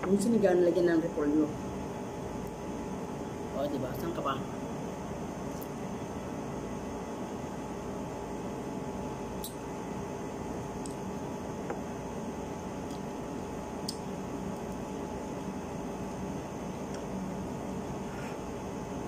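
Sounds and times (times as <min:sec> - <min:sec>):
room hum: 0:00.0 - 0:19.0
faint chewing clicks and smacks: 0:13.8 - 0:14.8.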